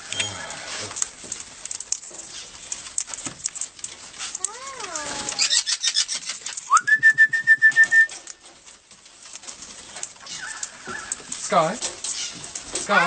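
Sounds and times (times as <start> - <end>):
parrot call: 4.4 - 6.5, 10.2 - 11.3.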